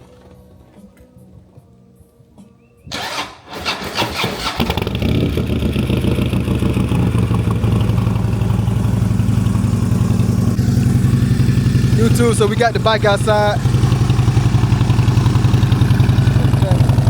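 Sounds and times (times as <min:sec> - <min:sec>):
motorcycle engine cranking: 0:02.9 - 0:17.0
motorcycle engine idling: 0:04.4 - 0:17.0.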